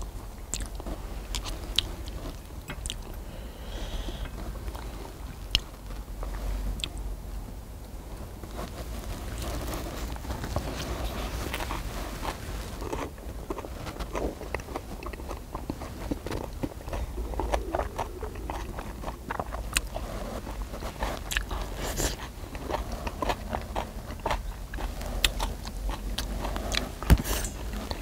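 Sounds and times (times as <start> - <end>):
chewing: 0.5 - 3.2, 8.5 - 28.0.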